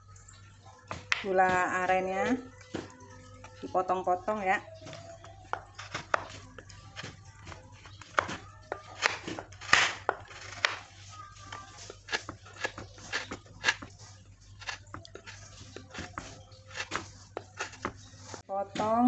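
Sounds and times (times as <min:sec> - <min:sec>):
knife crunching through sugar block: 0:05.5 - 0:18.4.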